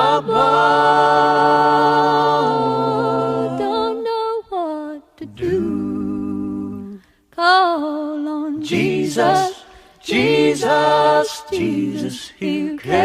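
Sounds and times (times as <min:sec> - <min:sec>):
unaccompanied hymn singing: 0:00.0 - 0:13.0.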